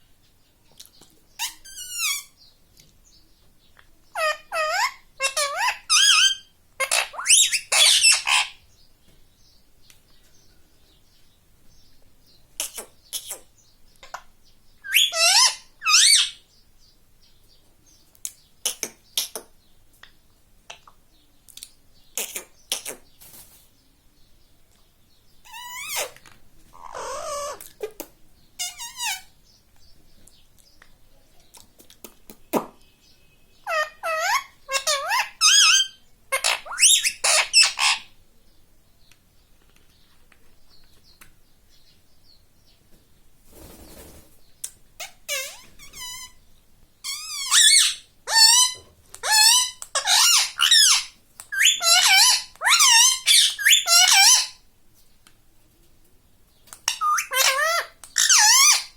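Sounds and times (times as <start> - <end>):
parrot calling: 1.4 - 2.4, 4.1 - 8.6, 14.8 - 16.4, 25.5 - 26.2, 26.8 - 27.7, 28.6 - 29.3, 33.6 - 38.2, 45.0 - 46.4, 47.0 - 54.6, 56.8 - 58.9
parrot squawks: 1.4 - 2.4, 4.2 - 8.6, 14.9 - 16.4, 26.8 - 27.6, 28.6 - 29.3, 33.6 - 38.1, 47.0 - 54.6, 56.8 - 58.9.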